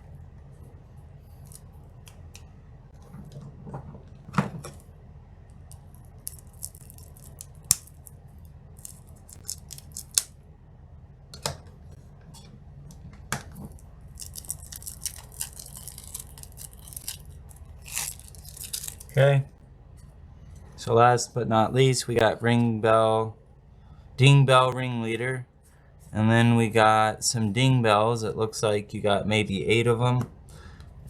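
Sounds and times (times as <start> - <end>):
crinkly packaging rustling: 13.6 - 19.4.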